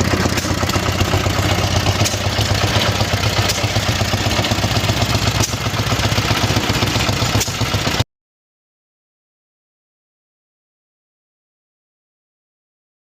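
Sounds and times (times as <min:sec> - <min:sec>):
stationary engine running: 0:00.0 - 0:08.0.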